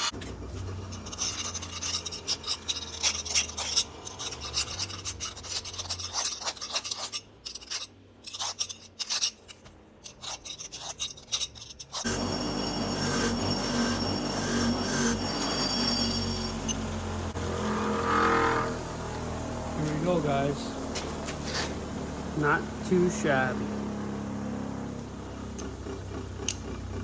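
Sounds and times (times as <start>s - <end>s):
file rasping over metal: 0.8s - 18.8s
steady machine noise: 12.1s - 27.0s.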